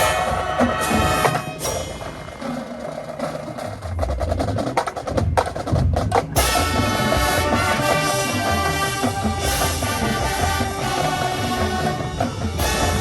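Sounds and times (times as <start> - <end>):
rapid percussion clicks and drums: 0.0 - 13.0
band playing held chords: 6.4 - 13.0.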